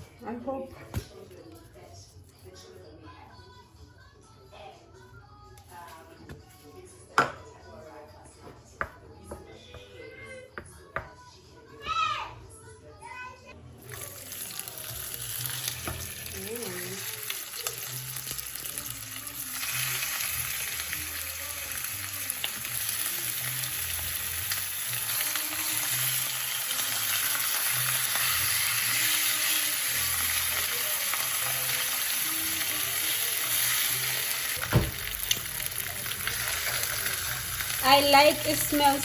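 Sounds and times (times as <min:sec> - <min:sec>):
meat sizzling in a pan: 0:13.8 - 0:39.0.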